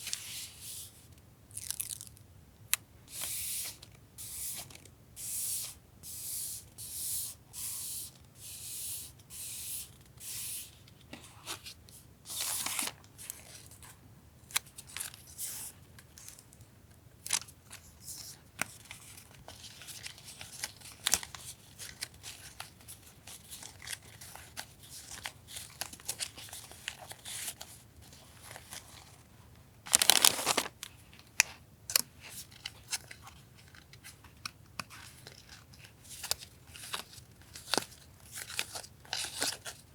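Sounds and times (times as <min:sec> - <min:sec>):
packaging rustling and crinkling: 0:29.9 - 0:30.9.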